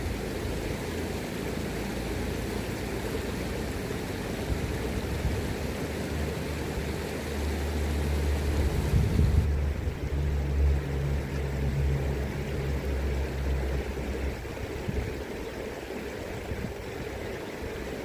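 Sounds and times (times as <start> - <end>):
river water rushing: 0.0 - 18.0
low rumble: 8.2 - 15.0.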